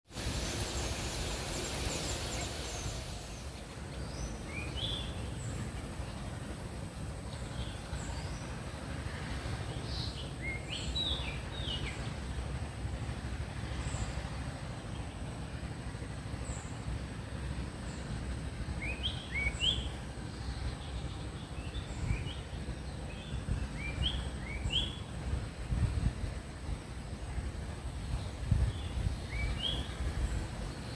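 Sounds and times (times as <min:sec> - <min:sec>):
steady low rumble: 0:00.1 - 0:30.9
bird chirping calls: 0:00.2 - 0:06.2, 0:17.9 - 0:25.1, 0:28.7 - 0:30.9.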